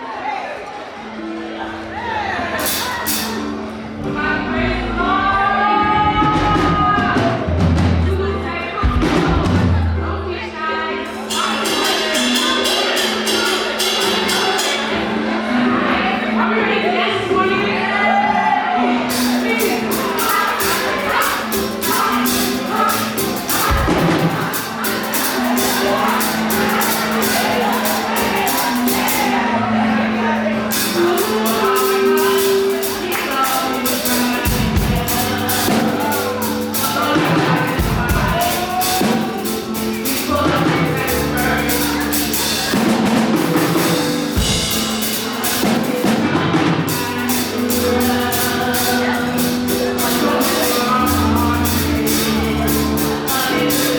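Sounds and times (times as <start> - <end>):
voices singing: 0.0 - 53.9
band playing fast gospel music: 1.1 - 53.9.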